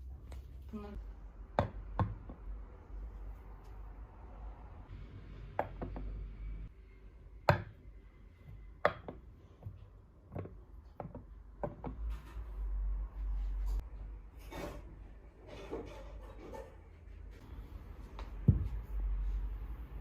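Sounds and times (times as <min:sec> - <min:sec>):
household objects knocking: 0:01.5 - 0:02.5, 0:05.5 - 0:06.2, 0:08.8 - 0:12.1, 0:18.4 - 0:18.8.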